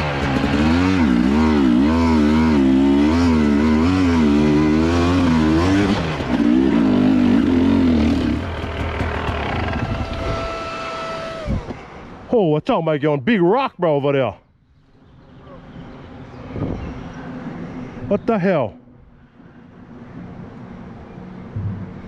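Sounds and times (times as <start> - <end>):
dirt bike engine revving: 0.0 - 11.5.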